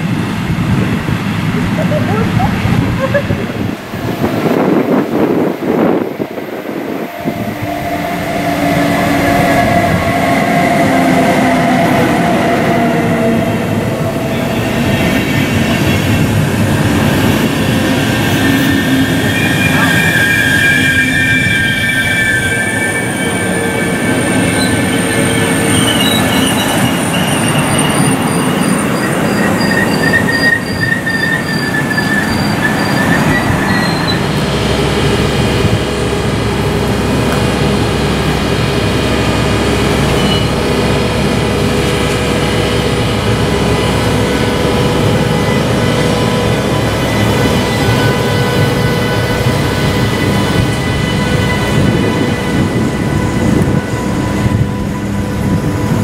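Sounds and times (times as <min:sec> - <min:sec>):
train coaches rolling rumble: 0:00.0 - 0:56.0
train wheels squealing: 0:04.4 - 0:34.8, 0:40.0 - 0:40.9, 0:43.4 - 0:56.0.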